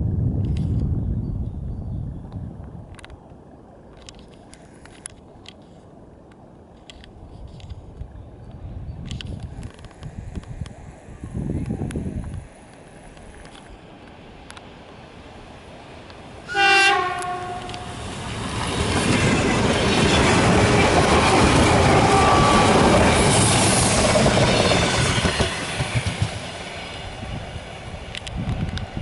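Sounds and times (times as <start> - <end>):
train wheels rushing on rails: 13.2 - 29.0
train horn blast: 16.5 - 18.0.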